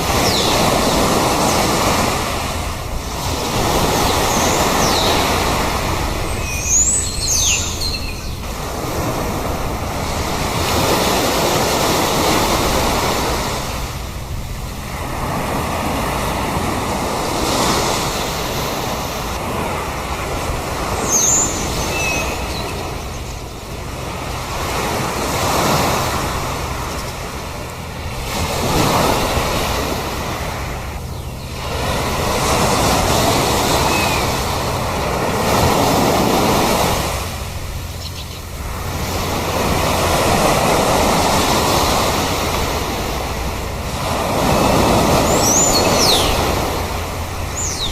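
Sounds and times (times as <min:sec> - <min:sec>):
waves breaking: 0:00.0 - 0:47.9
short high bird calls: 0:04.1 - 0:08.5, 0:21.0 - 0:23.5, 0:45.1 - 0:46.7.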